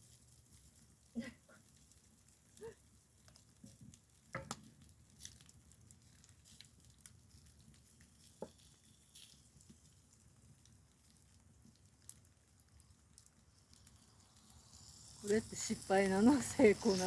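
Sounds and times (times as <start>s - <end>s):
wood fire crackling: 0.0s - 17.0s
small knocks: 4.3s - 4.6s.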